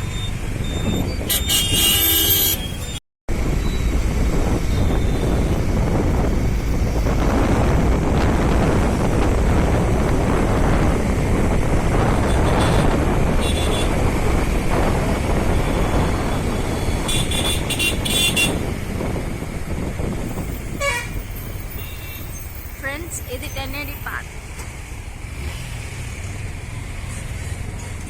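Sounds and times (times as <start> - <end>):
traffic noise: 0.0 - 28.0
wind buffeting microphone: 0.4 - 1.7, 3.3 - 24.2
vehicle horn honking: 1.3 - 2.8, 12.2 - 14.0, 17.0 - 18.6, 20.7 - 21.2.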